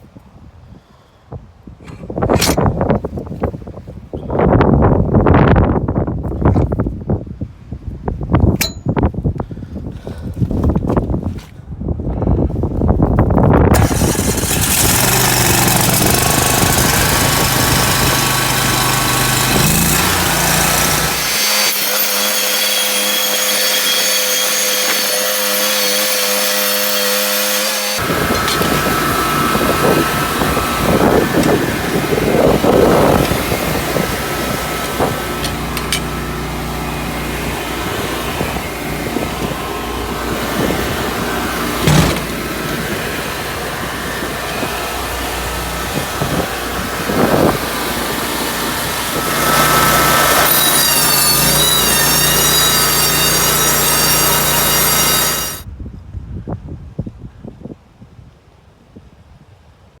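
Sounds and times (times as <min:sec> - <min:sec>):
sawmill engine running: 0:13.7 - 0:55.7.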